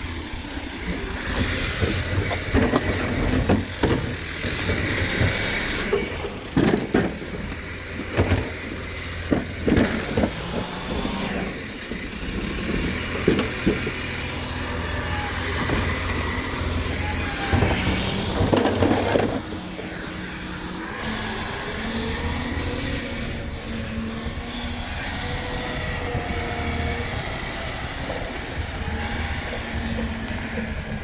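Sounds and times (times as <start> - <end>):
truck engine running: 0.0 - 31.0
knocks and rattles: 0.8 - 31.0.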